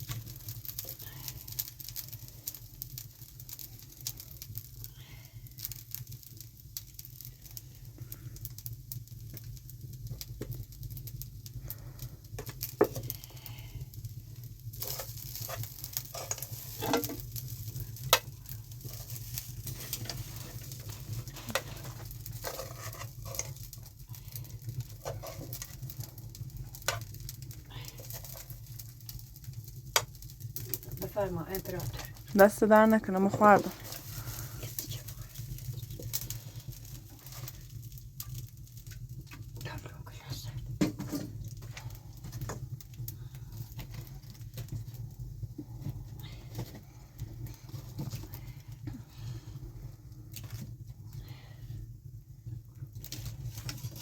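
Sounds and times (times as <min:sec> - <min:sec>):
food sizzling in a pan: 0:12.6 - 0:24.1, 0:25.0 - 0:28.7, 0:29.8 - 0:38.4
stirring clicks and taps: 0:14.8 - 0:27.2.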